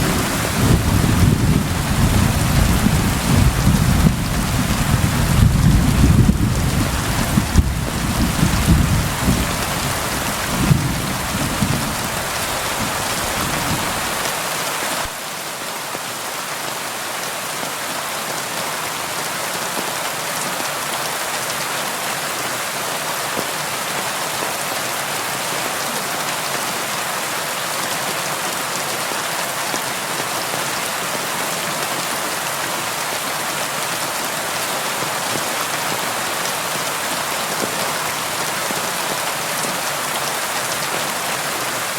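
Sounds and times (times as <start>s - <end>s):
thunder rumbling: 0.0s - 14.2s
rain on a window: 0.0s - 15.3s.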